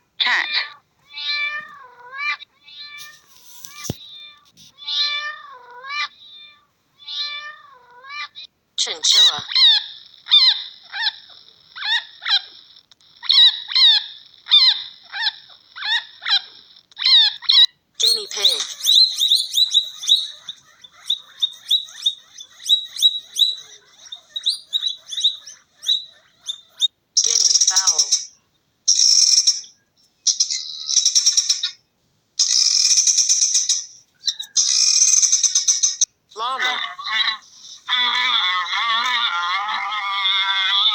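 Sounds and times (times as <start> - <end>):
chinchilla squeaking barks: 8.9 - 12.6, 13.2 - 28.2
guinea fowl chattering calls: 18.0 - 28.2.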